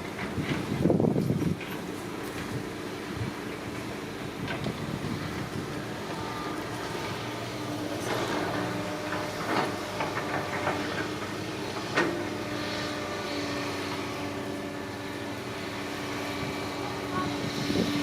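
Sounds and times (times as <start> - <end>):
excavator engine running: 0.0 - 18.0
clanks and knocks: 8.0 - 12.2.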